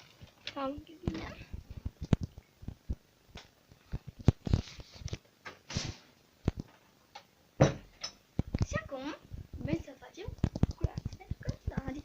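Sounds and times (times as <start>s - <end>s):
objects knocking and clicking: 9.7s - 12.0s.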